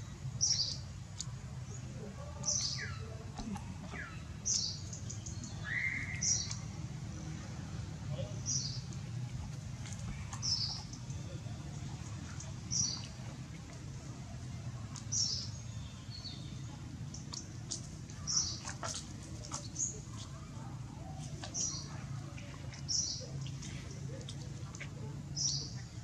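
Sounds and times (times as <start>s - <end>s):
bird chirping: 0.4s - 3.1s, 3.8s - 6.8s, 9.9s - 13.2s.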